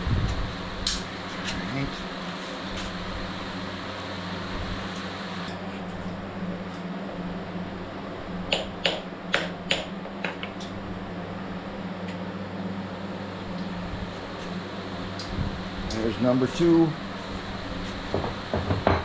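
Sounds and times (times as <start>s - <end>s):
fan hum: 0.0s - 19.0s.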